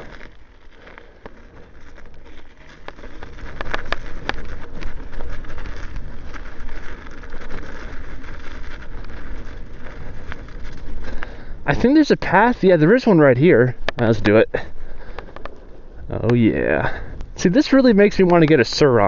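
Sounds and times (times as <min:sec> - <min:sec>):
tyre and wind rushing: 0:00.0 - 0:19.0.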